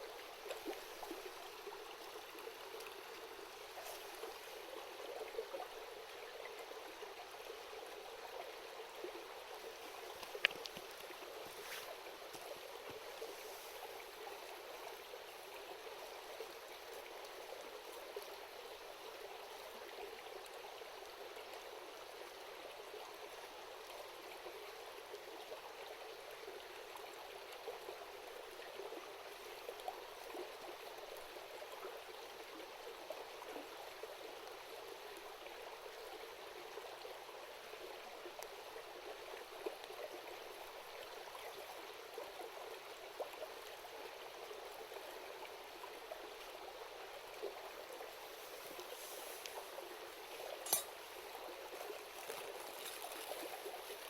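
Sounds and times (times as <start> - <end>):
faint sharp clicks: 10.2 - 11.1.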